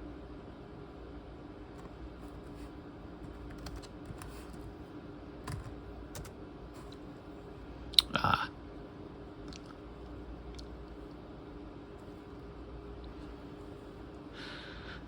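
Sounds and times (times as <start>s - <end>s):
steady low hum: 0.0s - 15.0s
laptop keys clicking: 3.2s - 4.6s, 5.4s - 6.4s.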